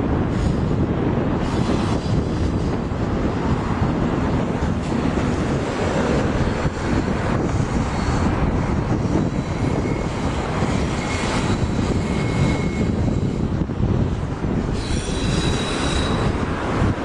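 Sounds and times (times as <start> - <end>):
freight train rumbling past: 0.0 - 17.0
faint wheel squeals: 14.7 - 16.5.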